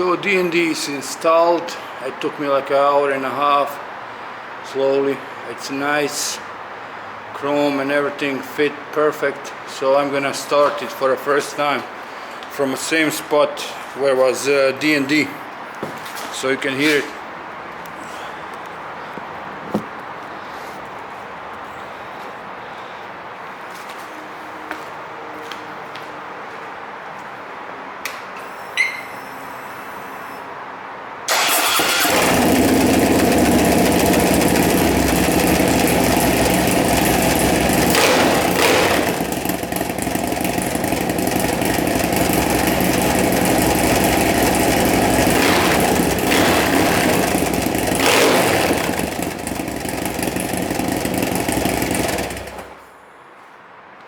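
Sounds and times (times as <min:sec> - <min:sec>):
motorcycle engine running loudly: 0:31.4 - 0:52.8.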